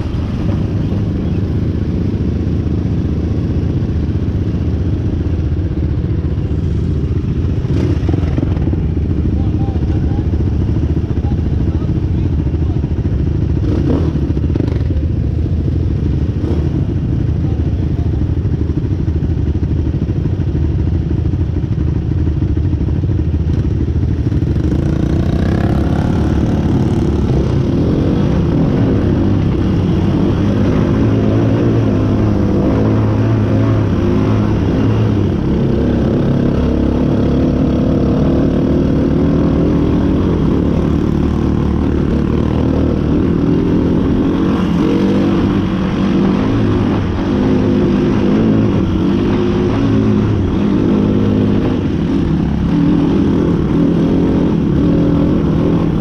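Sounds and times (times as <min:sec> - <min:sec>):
off-road vehicle engine revving: 0:13.6 - 0:15.0, 0:24.4 - 0:56.0.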